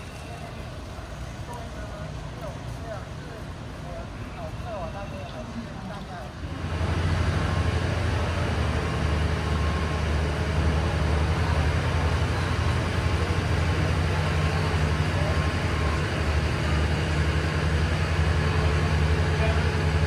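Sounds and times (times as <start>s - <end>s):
diesel train idling: 0.0s - 20.0s
station noise: 6.3s - 20.0s.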